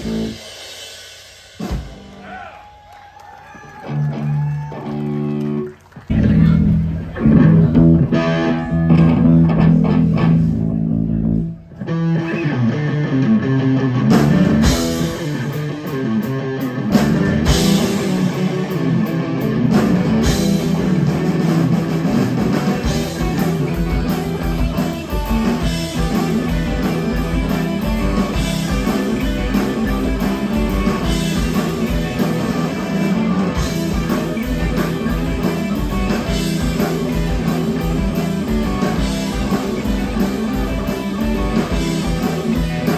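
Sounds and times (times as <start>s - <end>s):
drums and cymbals hitting: 0.0s - 3.1s, 14.1s - 16.1s, 16.8s - 42.9s
live rock band playing: 0.0s - 42.9s.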